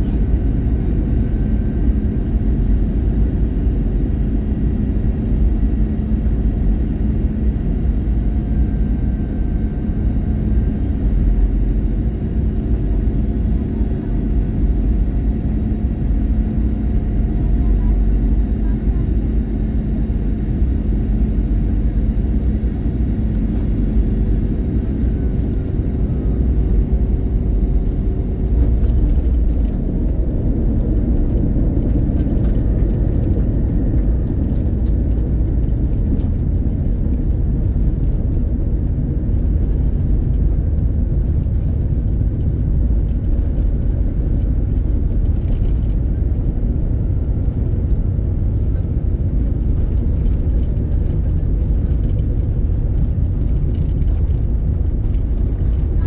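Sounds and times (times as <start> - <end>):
low jet engine rumble: 0.0 - 56.0
wheels rolling on tarmac: 26.4 - 46.4, 49.1 - 56.0.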